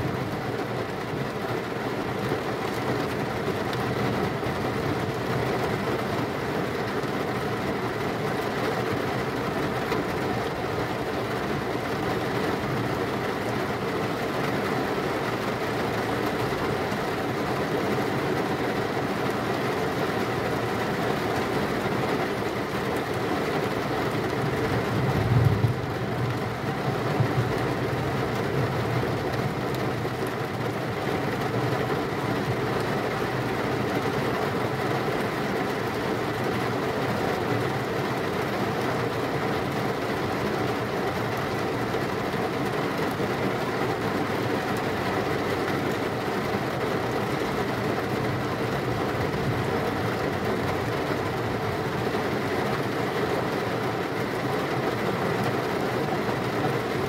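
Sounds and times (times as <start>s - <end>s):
heavy rain pouring: 0.0s - 57.0s
low rumble of thunder: 25.0s - 27.9s.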